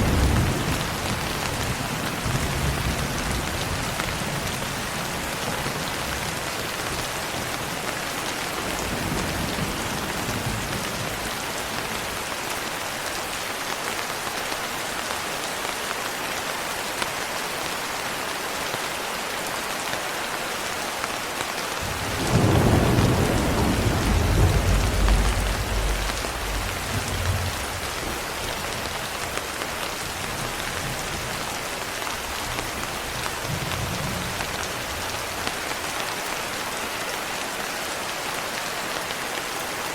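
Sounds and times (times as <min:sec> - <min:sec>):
thunder rumbling: 0:00.0 - 0:05.2, 0:21.8 - 0:29.4.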